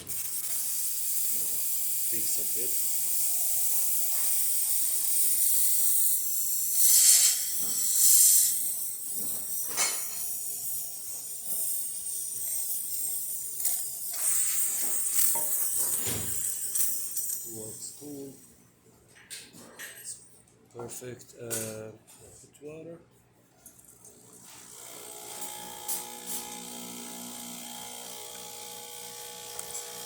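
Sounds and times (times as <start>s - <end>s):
espresso machine steam hissing: 0.0s - 17.6s, 24.3s - 30.0s.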